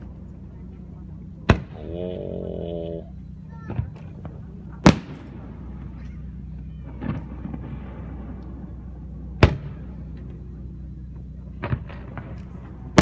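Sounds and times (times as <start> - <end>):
steady low hum: 0.0 - 13.0
fireworks bangs: 3.7 - 10.6, 11.5 - 13.0.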